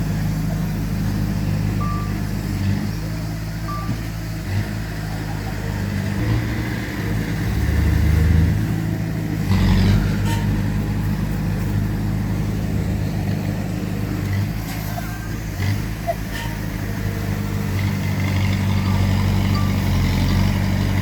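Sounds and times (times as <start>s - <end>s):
heavy diesel engines running: 0.0s - 21.0s
short beep: 1.8s - 2.2s, 3.7s - 4.1s.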